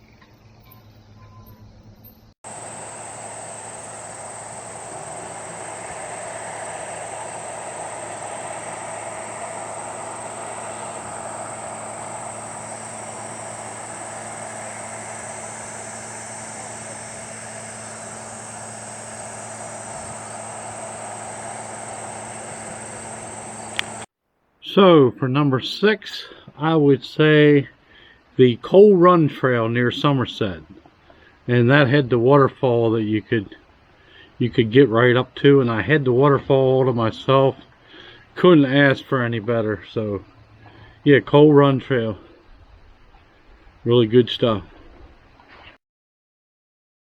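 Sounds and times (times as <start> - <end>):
insects chirring: 0.0 - 24.1
constant rushing noise: 2.5 - 24.1.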